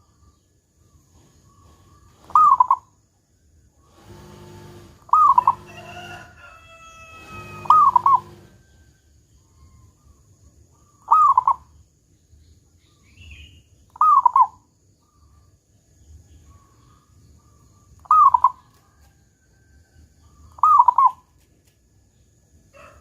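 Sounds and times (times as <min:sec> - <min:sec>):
low drawn-out bird call: 0:00.0 - 0:03.0, 0:04.0 - 0:08.9, 0:09.5 - 0:11.8, 0:13.0 - 0:15.4, 0:16.5 - 0:18.7, 0:20.3 - 0:21.3
dove cooing: 0:01.5 - 0:02.9, 0:03.9 - 0:08.6, 0:11.0 - 0:11.7, 0:14.0 - 0:14.6, 0:18.0 - 0:18.7, 0:20.6 - 0:21.2.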